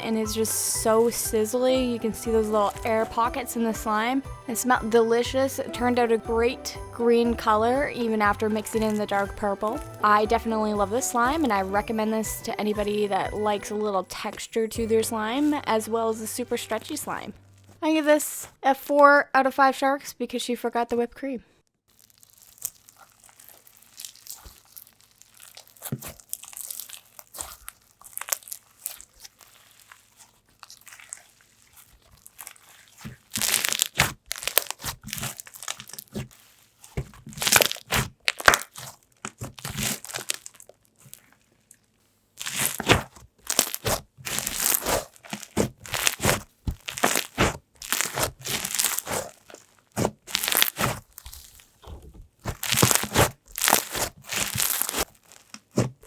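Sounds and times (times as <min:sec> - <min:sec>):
slime crackling and popping: 0:08.5 - 0:10.3, 0:21.9 - 0:56.0
soft slime handling: 0:22.0 - 0:56.0.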